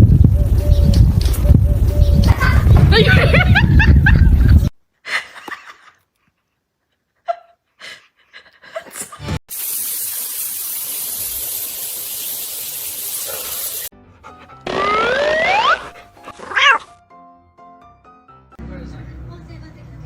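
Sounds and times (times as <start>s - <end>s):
steady hiss: 9.5s - 13.9s.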